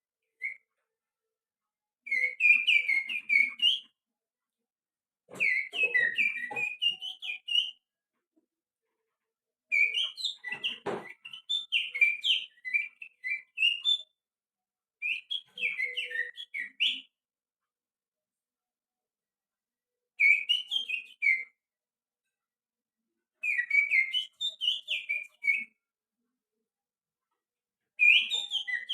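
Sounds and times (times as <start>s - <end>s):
finger whistling birdsong: 0.2s - 0.7s, 2.1s - 4.0s, 5.4s - 7.8s, 9.7s - 14.2s, 15.0s - 17.2s, 20.2s - 21.6s, 23.4s - 25.8s, 28.0s - 28.9s.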